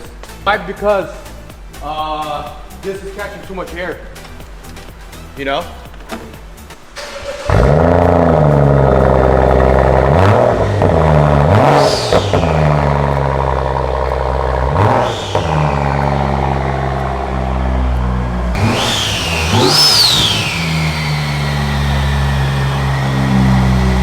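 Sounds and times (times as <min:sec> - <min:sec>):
car engine idling and revving: 0:05.8 - 0:24.0
turbo whine: 0:07.0 - 0:24.0.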